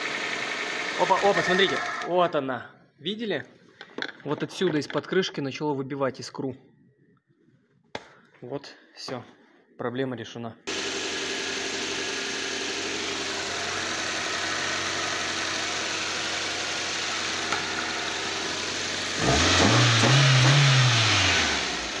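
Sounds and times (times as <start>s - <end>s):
car engine idling and revving: 0.0s - 1.6s, 10.7s - 22.0s.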